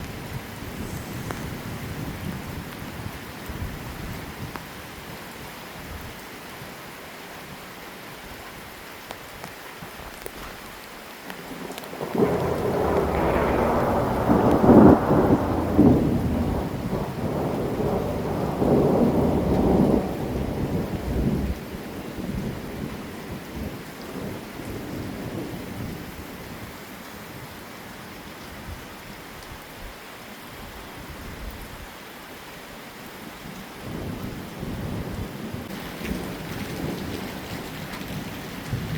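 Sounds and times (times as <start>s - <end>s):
heavy rain hissing: 0.0s - 31.8s, 32.6s - 38.9s
thunder rolling: 0.3s - 3.8s, 11.5s - 22.8s.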